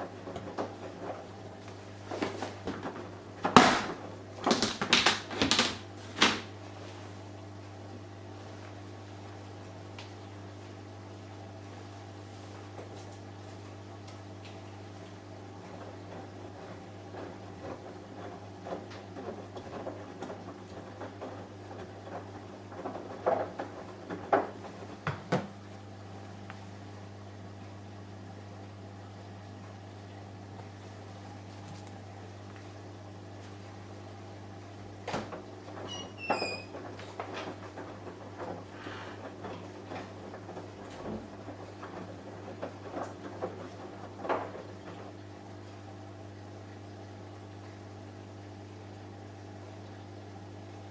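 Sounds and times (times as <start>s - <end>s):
washing machine motor hum: 0.0s - 50.9s.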